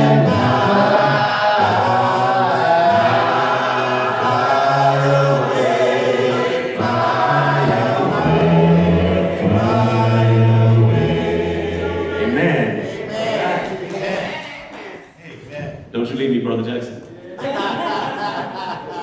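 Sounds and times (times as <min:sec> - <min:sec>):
low men's voices singing bass: 0:00.0 - 0:13.8
congregation singing a hymn: 0:00.0 - 0:15.2.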